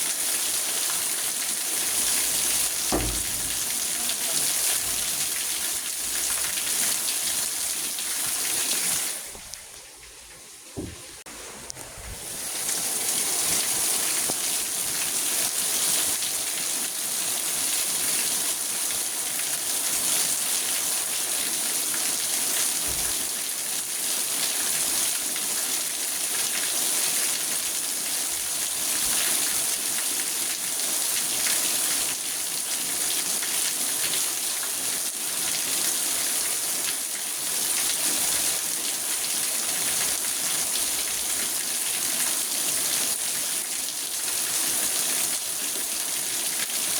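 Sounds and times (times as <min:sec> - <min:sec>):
rain on car roof and glass: 0:01.8 - 0:15.0, 0:22.8 - 0:23.4.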